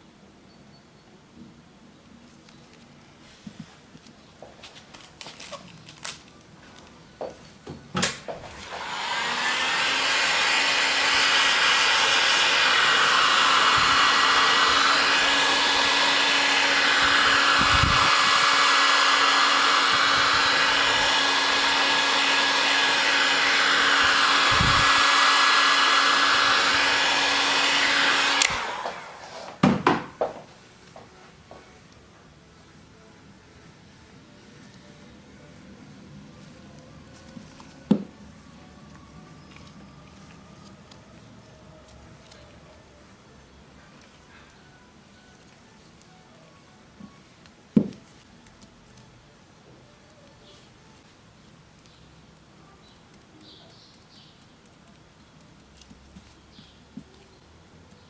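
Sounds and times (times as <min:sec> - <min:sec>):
hot-air blower running: 0:08.0 - 0:30.4.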